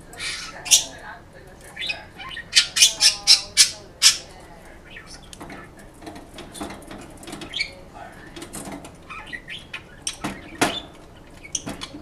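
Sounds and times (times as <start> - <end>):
bird chirps: 1.8 - 5.8, 9.1 - 12.0
bird tapping and scratching in cage: 2.9 - 12.0.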